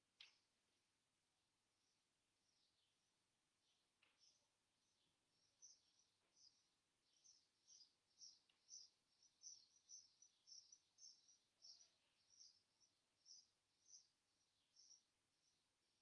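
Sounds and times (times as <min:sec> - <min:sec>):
faint high bird chirps: 0:03.6 - 0:16.0.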